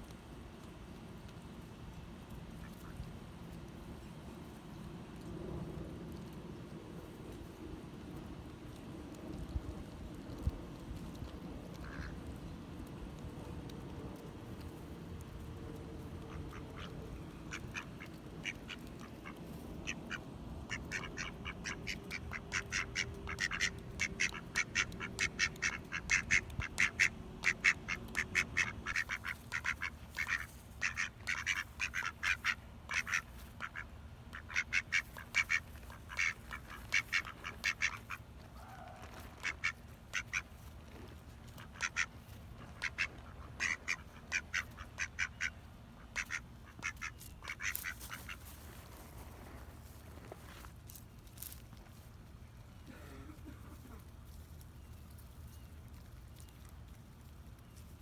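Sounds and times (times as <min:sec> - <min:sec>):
ducks quacking: 0:16.2 - 0:40.6, 0:41.4 - 0:48.6.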